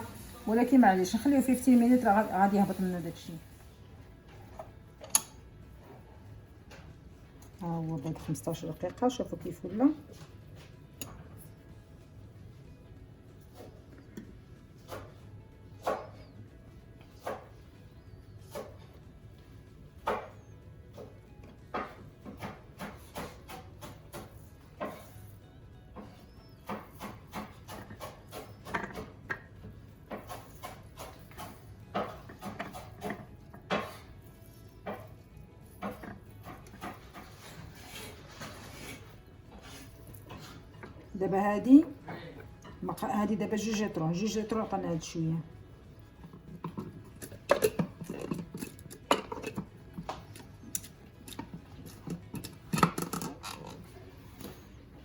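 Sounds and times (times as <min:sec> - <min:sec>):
kitchen things knocking and rubbing: 0:26.0 - 0:29.5, 0:35.8 - 0:40.7, 0:46.2 - 0:50.4
kitchen utensils knocking and clicking: 0:26.7 - 0:29.5, 0:46.2 - 0:53.8.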